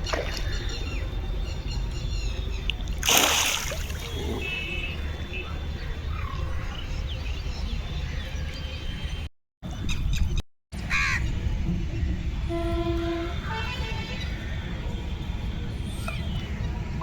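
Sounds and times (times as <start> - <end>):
short multi-tone honk: 12.4 - 14.2.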